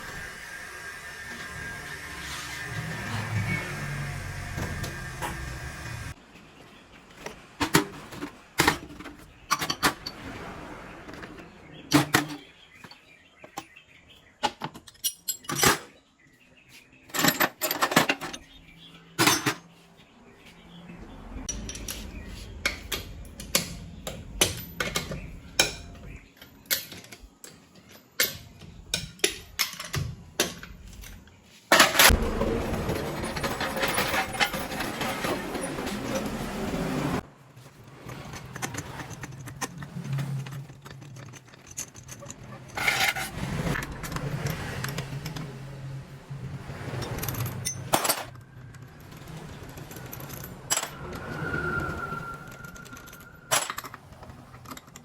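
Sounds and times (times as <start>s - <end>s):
hand tools clinking and knocking: 7.1s - 10.3s, 14.4s - 16.0s, 17.0s - 19.8s, 21.5s - 45.6s, 46.7s - 51.5s, 52.2s - 55.0s.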